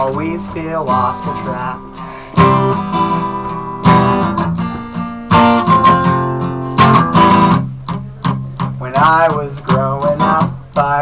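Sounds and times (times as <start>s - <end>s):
person singing: 0.0s - 3.2s
acoustic guitar strummed hard: 0.0s - 11.0s.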